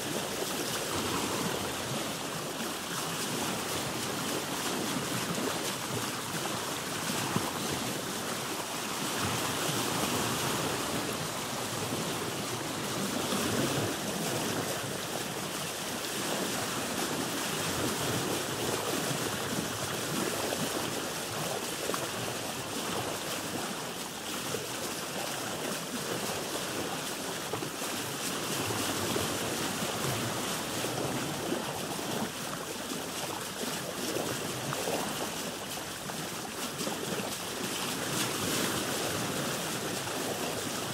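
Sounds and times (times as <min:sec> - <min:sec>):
waves sloshing around a boat: 0:00.0 - 0:40.9.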